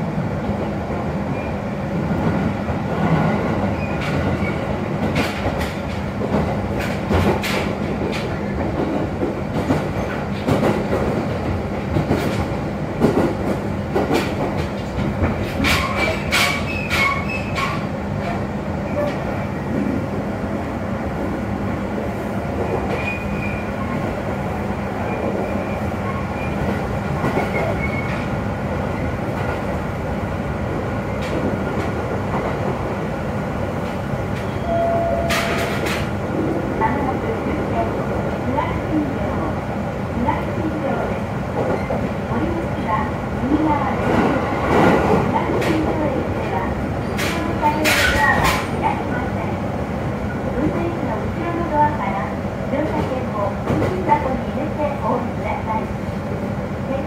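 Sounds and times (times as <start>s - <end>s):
train carriage rumble: 0.0s - 57.0s
rail-joint clicks: 3.0s - 19.9s, 33.8s - 36.2s, 44.0s - 49.4s.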